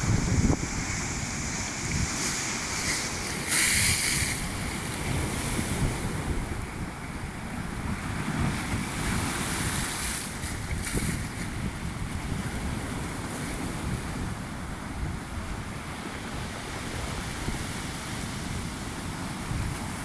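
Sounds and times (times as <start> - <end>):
sea surf breaking: 0.0 - 7.0
wind buffeting the microphone: 0.0 - 20.0.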